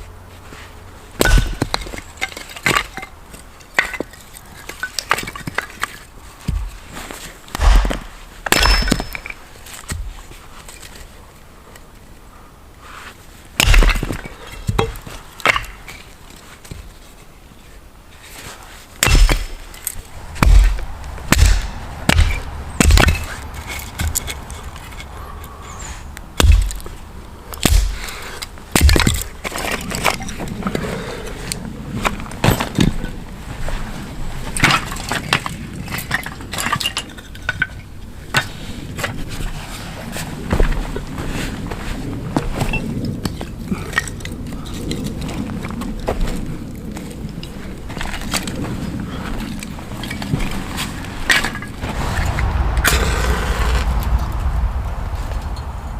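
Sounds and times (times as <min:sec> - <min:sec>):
dry wood snapping: 0:19.0 - 0:25.0, 0:26.4 - 0:30.3.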